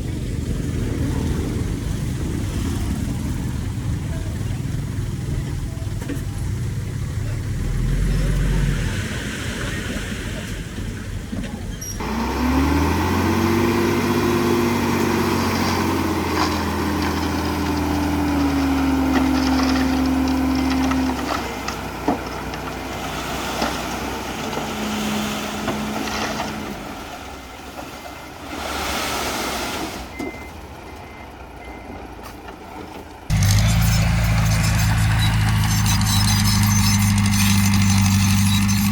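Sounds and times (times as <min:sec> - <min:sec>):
diesel engine revving: 0:06.4 - 0:11.2, 0:12.0 - 0:27.1, 0:33.3 - 0:38.9.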